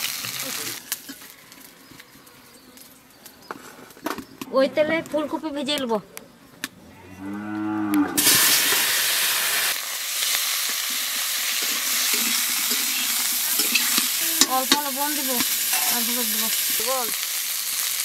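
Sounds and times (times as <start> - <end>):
vegetables sizzling in hot oil: 0.0 - 1.3, 8.2 - 18.0
cow mooing: 6.8 - 8.3
metal spatula stirring: 10.6 - 16.8.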